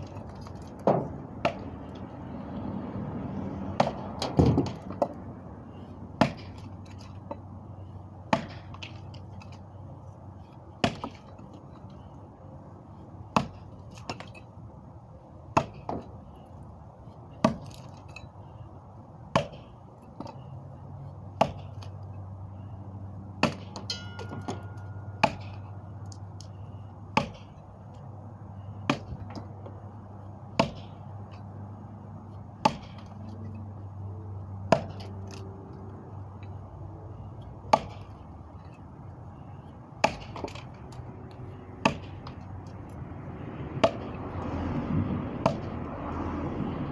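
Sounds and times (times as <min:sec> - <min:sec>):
sharp chopping impacts: 0:03.8 - 0:05.2, 0:06.2 - 0:07.3, 0:08.3 - 0:09.5, 0:10.8 - 0:11.3, 0:13.3 - 0:14.4, 0:15.5 - 0:16.2, 0:17.4 - 0:18.2, 0:19.3 - 0:20.4, 0:21.3 - 0:22.0, 0:23.4 - 0:25.6, 0:27.1 - 0:27.6, 0:28.8 - 0:29.9, 0:30.5 - 0:31.4, 0:32.4 - 0:33.6, 0:34.6 - 0:35.4, 0:37.6 - 0:38.8, 0:40.0 - 0:40.9, 0:41.8 - 0:42.9, 0:43.8 - 0:44.4, 0:45.4 - 0:45.8.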